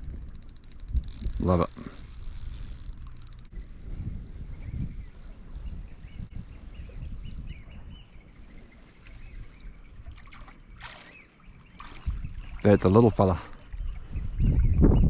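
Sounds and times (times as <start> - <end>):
wind on microphone: 0.0 - 2.7, 3.5 - 11.0, 11.7 - 15.0
fishing reel gears ticking: 0.0 - 15.0.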